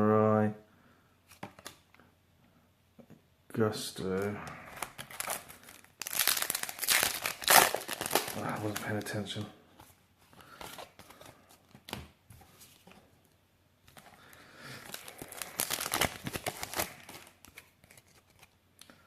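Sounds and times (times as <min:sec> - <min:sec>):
foil wrapper crinkling and tearing: 0:04.7 - 0:09.2, 0:14.7 - 0:18.6.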